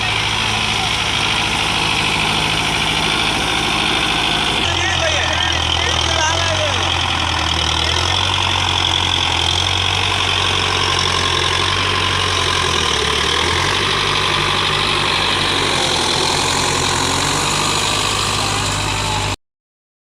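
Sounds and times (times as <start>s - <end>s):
tractor diesel engine drone: 0.0s - 19.4s.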